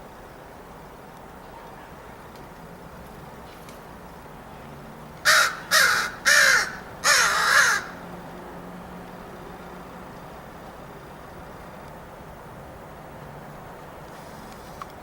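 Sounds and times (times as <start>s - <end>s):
crow cawing: 5.2s - 8.0s.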